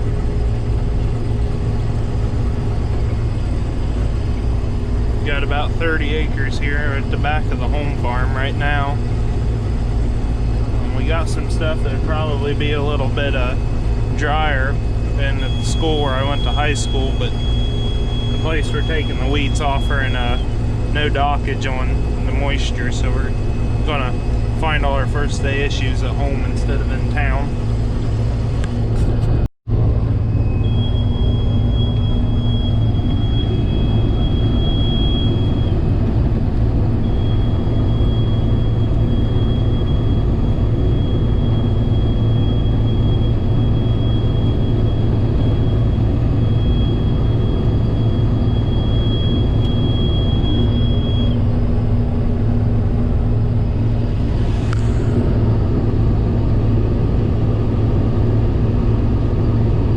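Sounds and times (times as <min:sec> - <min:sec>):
thin high whine: 0:00.0 - 0:29.4, 0:30.0 - 0:59.9
combine harvester engine drone: 0:00.0 - 0:59.9.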